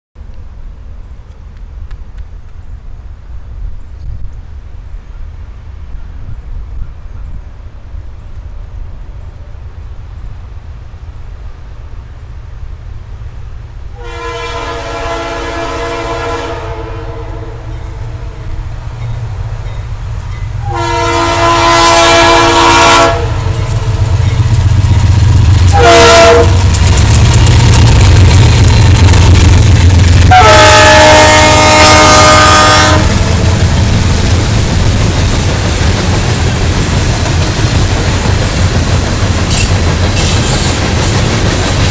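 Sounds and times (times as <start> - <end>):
diesel engine and train rumbling: 0.2 - 41.9
locomotive air horn blasts: 13.9 - 18.6, 20.6 - 24.0, 25.7 - 26.7, 30.3 - 33.3.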